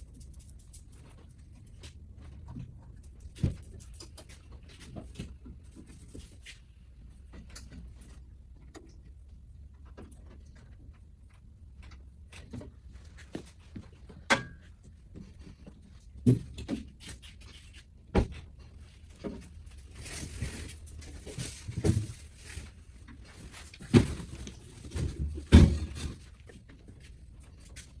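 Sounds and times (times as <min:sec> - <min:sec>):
scraping and rustling: 0:18.7 - 0:28.0.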